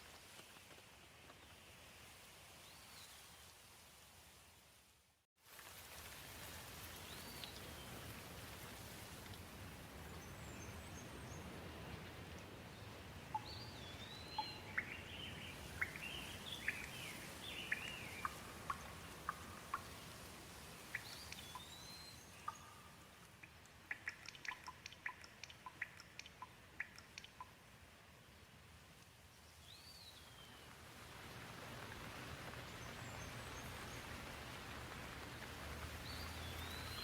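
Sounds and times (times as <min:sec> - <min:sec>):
gentle rain falling: 0:00.0 - 0:37.0
bird chirping: 0:13.3 - 0:19.9, 0:20.9 - 0:27.5, 0:36.1 - 0:37.0
sharp drips: 0:15.7 - 0:27.6.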